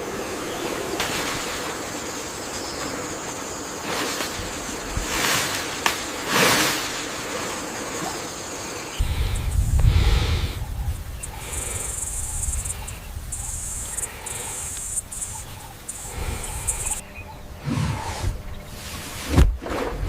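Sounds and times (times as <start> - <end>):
steady rushing noise: 9.0 - 19.6.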